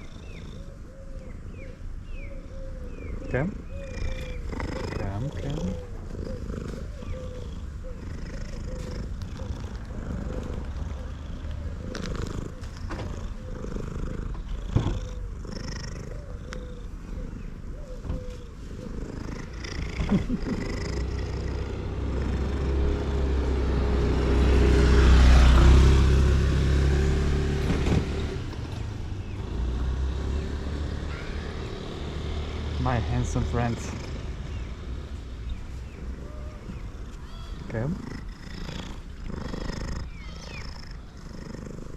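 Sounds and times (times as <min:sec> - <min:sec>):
cat purring loudly: 0:00.0 - 0:00.9, 0:02.9 - 0:26.6, 0:35.8 - 0:41.9.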